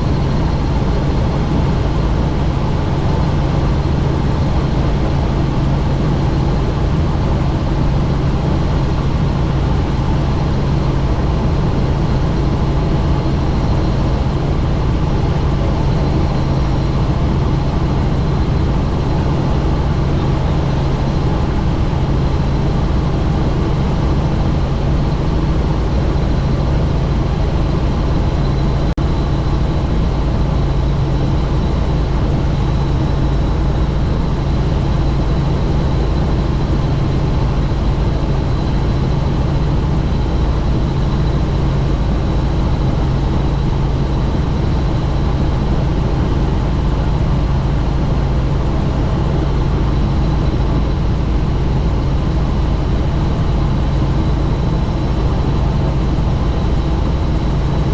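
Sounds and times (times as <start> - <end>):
helicopter engine and rotor noise: 0.0 - 57.9
high steady whine: 0.0 - 57.9
rushing wind: 0.0 - 57.9.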